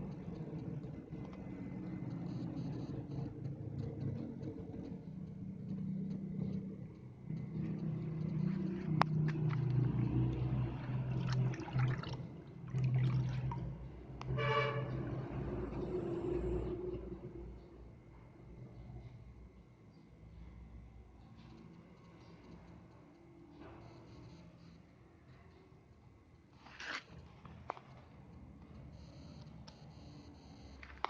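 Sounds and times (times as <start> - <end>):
machine motor hum: 0.0 - 19.0
short horn-like tone: 14.3 - 15.4.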